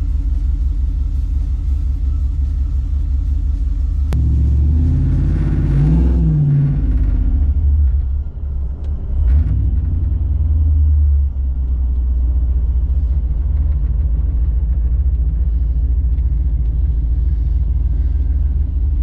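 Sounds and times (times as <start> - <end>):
pickup engine idling: 0.0 - 19.0.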